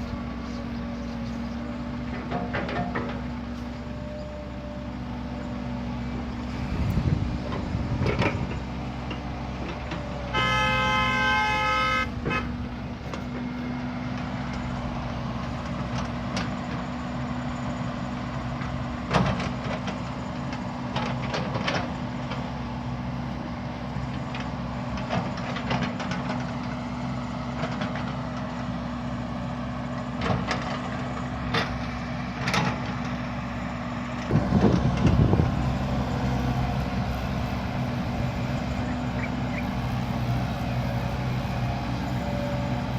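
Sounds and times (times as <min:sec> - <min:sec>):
heavy diesel engine drone: 0:00.0 - 0:42.9
vehicle horn: 0:10.2 - 0:12.6.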